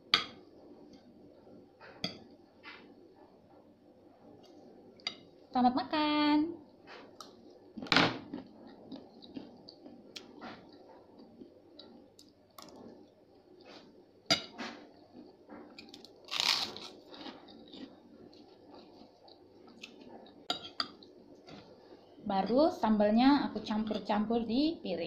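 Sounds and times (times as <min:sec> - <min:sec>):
chewing and crunching: 0:07.0 - 0:13.9, 0:14.8 - 0:21.6.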